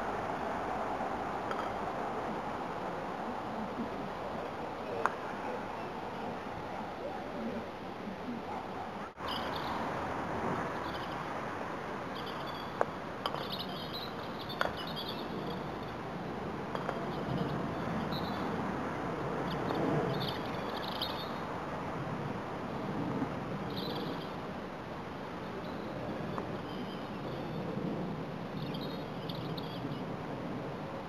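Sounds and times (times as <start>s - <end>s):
outdoor background hiss: 0.0s - 31.0s
birds singing: 13.4s - 15.6s, 19.6s - 21.4s.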